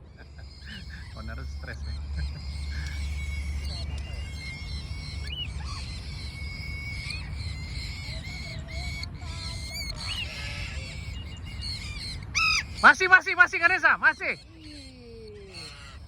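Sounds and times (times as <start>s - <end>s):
steady low rumble: 0.0s - 12.4s
birds chirping faintly: 0.0s - 16.0s.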